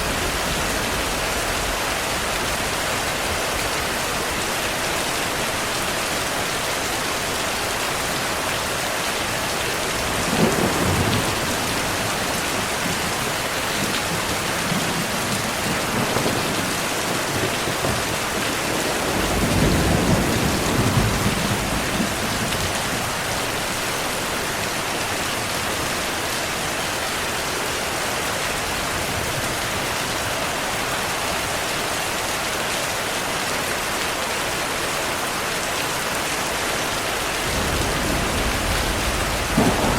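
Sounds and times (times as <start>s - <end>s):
thunder rumbling: 0.0s - 4.0s, 9.8s - 23.8s, 37.4s - 39.9s
heavy rain hissing: 0.0s - 39.9s.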